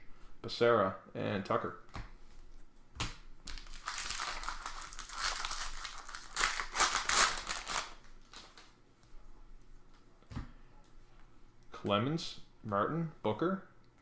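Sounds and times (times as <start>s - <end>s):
foil wrapper crinkling: 3.5s - 8.8s.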